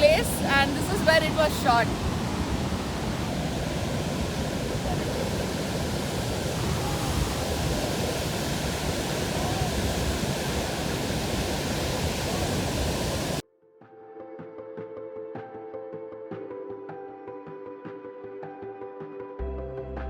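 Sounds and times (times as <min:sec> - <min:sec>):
waterfall roaring: 0:00.0 - 0:13.4.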